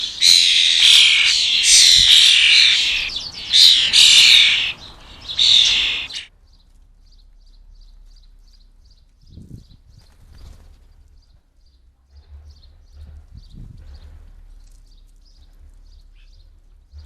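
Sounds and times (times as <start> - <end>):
harsh rasping bird calls: 0.0 - 6.3.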